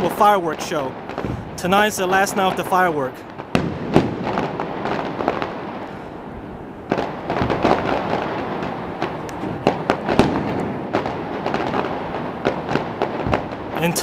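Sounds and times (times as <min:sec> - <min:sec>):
fireworks bangs: 0:00.0 - 0:14.0
fireworks crackling: 0:00.0 - 0:14.0.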